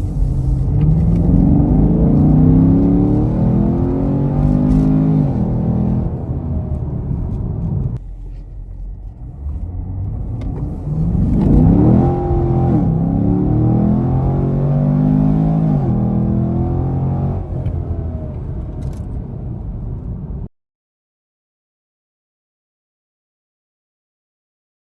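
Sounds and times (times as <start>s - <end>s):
car engine revving: 0.0s - 18.9s.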